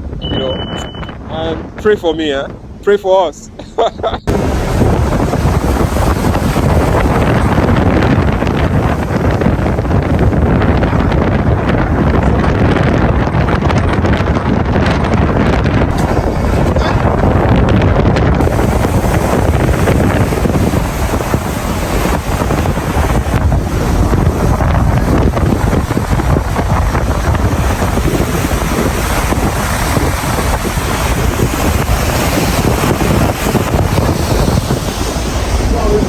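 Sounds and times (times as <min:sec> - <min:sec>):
gale wind buffeting microphone: 0:00.0 - 0:36.0
rough seas and waves on hull: 0:00.0 - 0:36.0.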